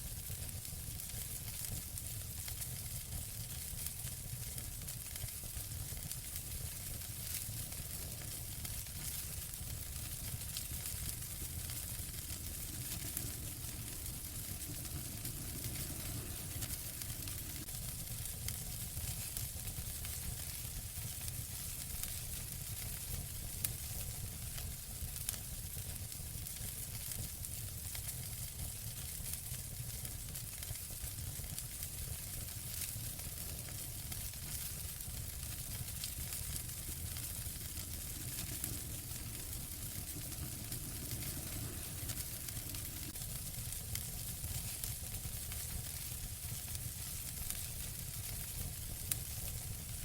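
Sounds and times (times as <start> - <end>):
wood fire crackling: 0.0 - 50.0
sharp fire pops: 3.5 - 24.1, 31.4 - 50.0.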